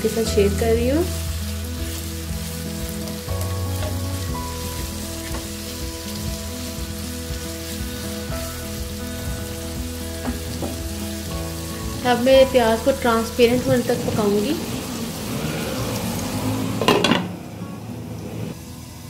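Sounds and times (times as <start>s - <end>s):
onions sizzling in hot oil: 0.0s - 17.4s, 18.2s - 19.0s.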